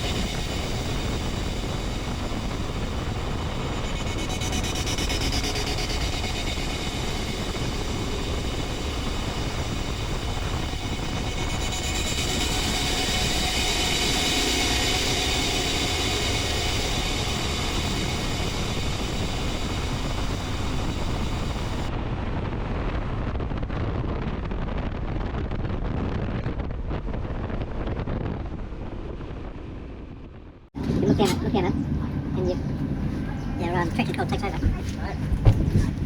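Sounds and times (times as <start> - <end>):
motorcycle engine running: 0.0 - 21.9
wind noise on microphone: 0.0 - 36.0.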